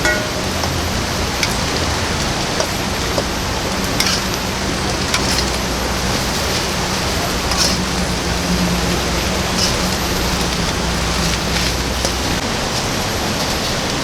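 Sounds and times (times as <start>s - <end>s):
drops striking a hard surface: 0.0s - 1.7s
heavy rain: 0.0s - 14.0s.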